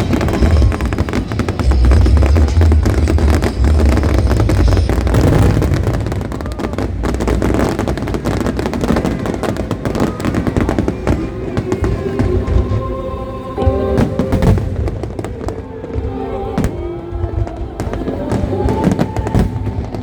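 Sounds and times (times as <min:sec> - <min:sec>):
fireworks cracking and popping: 0:00.0 - 0:12.8, 0:13.9 - 0:20.0
heavy low firework booms: 0:00.0 - 0:12.8, 0:14.0 - 0:16.0.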